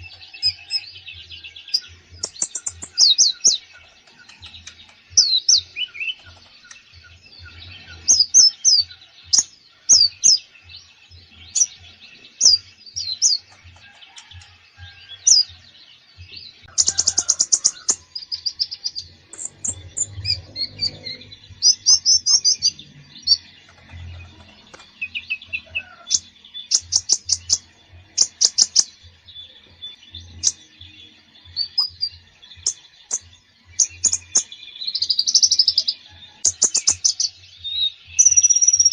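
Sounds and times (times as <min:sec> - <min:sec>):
songbird singing: 0:00.0 - 0:38.9
fast rattling bird trills: 0:02.2 - 0:06.8, 0:16.7 - 0:27.6.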